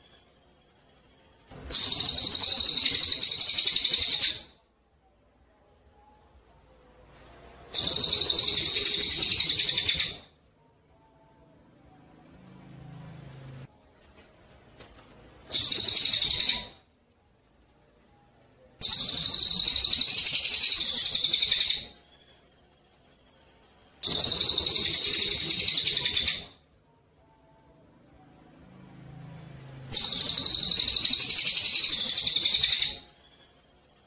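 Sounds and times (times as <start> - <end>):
faint high whine: 0.0 - 34.0
bird fast rattling trill: 1.7 - 4.5, 7.7 - 10.2, 15.4 - 16.8, 18.8 - 22.0, 24.0 - 26.5, 29.9 - 33.0.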